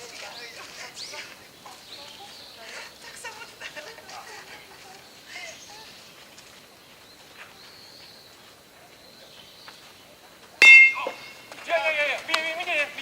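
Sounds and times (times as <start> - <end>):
distant voices: 0.0 - 13.0
faint thin high tone: 10.6 - 11.5.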